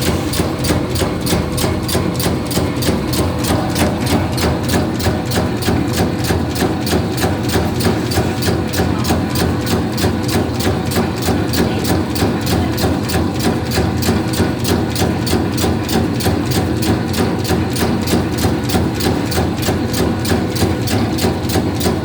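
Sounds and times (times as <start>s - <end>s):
machine motor hum: 0.0s - 14.4s.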